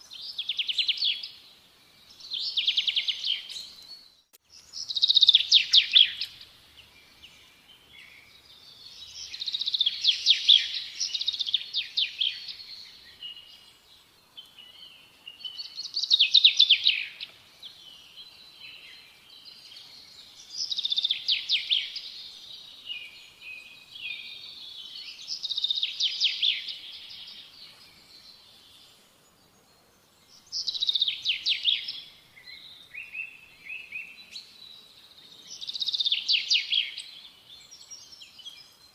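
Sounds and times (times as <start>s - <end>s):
songbird trilling: 4.6s - 6.4s.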